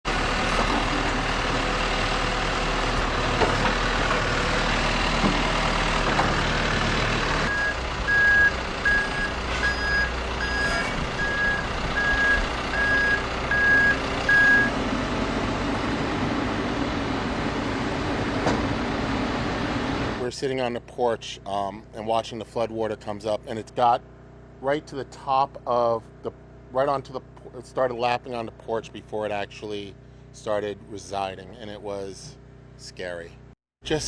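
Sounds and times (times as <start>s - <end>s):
engines and heavy vehicles: 0.0s - 20.7s, 22.8s - 34.0s
reversing alarm beeping: 7.5s - 14.8s.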